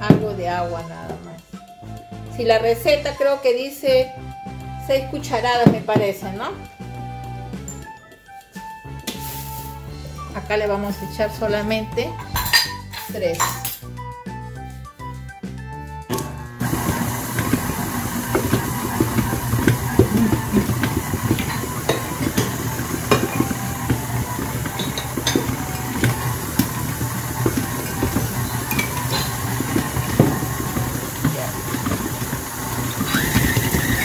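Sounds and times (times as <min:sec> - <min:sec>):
stand mixer motor hum: 0:16.5 - 0:34.0
dough knocking against bowl: 0:16.7 - 0:34.0.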